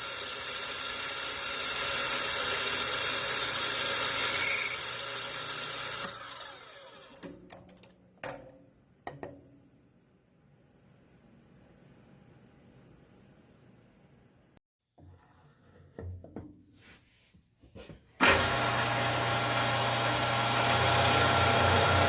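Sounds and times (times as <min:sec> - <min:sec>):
power tool whirring: 0:00.0 - 0:07.3, 0:18.2 - 0:22.0.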